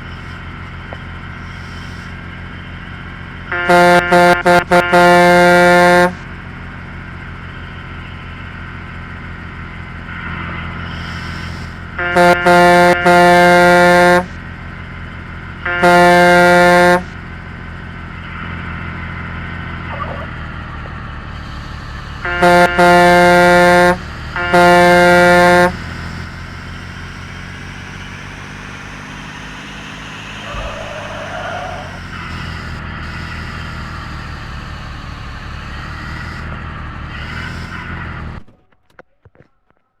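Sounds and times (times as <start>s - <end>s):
diesel truck engine running: 0.0s - 38.6s
truck horn blasts: 3.4s - 6.4s, 10.1s - 14.6s, 15.5s - 17.4s, 21.3s - 38.0s.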